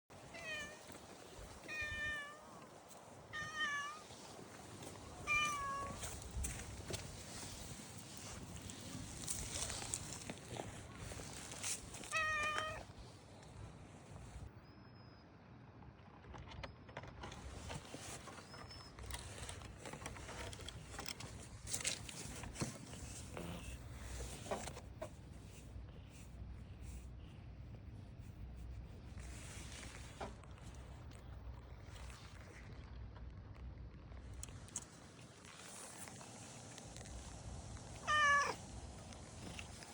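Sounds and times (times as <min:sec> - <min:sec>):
soft rustling: 0:00.1 - 0:14.5, 0:17.3 - 0:33.4, 0:34.1 - 0:39.9
cat meowing: 0:00.3 - 0:00.9, 0:01.5 - 0:02.7, 0:03.3 - 0:04.1, 0:05.2 - 0:06.1, 0:12.0 - 0:12.9, 0:38.0 - 0:38.7.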